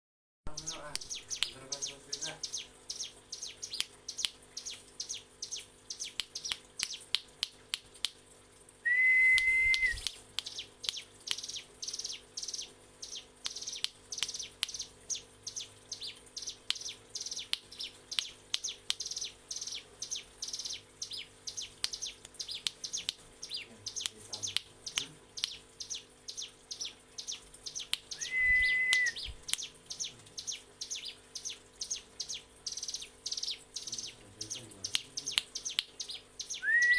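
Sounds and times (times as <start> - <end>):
bird whistle-like tone: 8.8 - 10.1, 28.2 - 29.4, 36.6 - 36.9.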